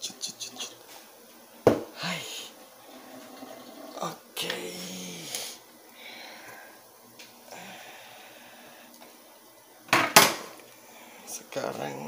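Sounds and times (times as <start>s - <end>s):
faint kitchen handling noises: 9.9s - 10.6s.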